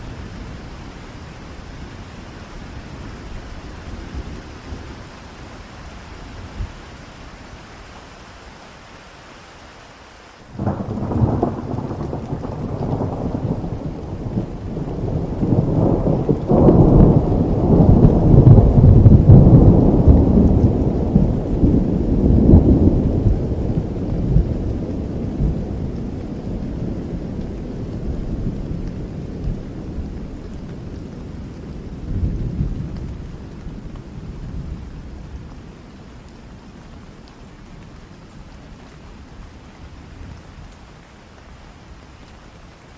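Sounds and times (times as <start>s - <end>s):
steady rain: 0.0s - 42.9s
thunder rolling: 10.6s - 27.4s.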